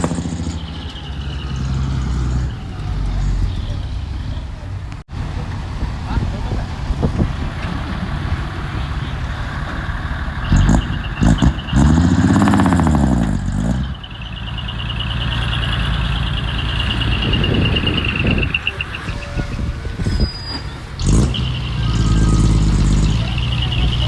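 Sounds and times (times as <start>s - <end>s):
diesel engine running: 0.0s - 24.0s
fast-pulsing high squeal: 13.9s - 24.0s.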